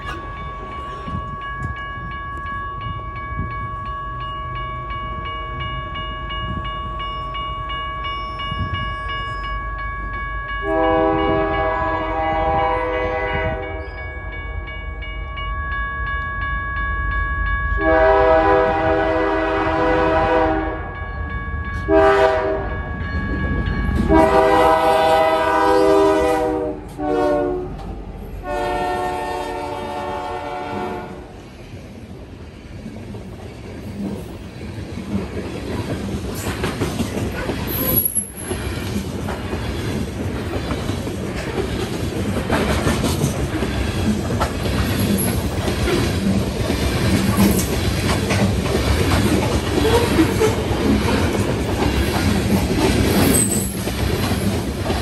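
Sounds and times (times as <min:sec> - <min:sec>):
locomotive air horn blasts: 0:10.6 - 0:13.8, 0:17.8 - 0:20.9, 0:21.9 - 0:22.7, 0:24.1 - 0:27.7, 0:28.4 - 0:31.3
wheel squeal: 0:53.2 - 0:53.8.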